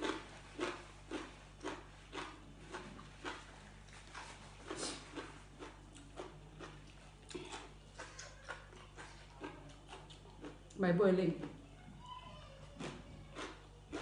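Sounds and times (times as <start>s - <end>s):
person chewing crunchy food: 0.0s - 10.8s, 12.6s - 14.0s
faint low hum: 0.0s - 14.0s.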